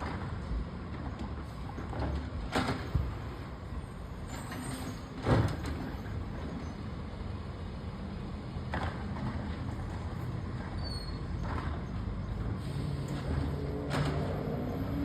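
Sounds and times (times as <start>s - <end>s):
air brake hisses: 12.6s - 13.2s.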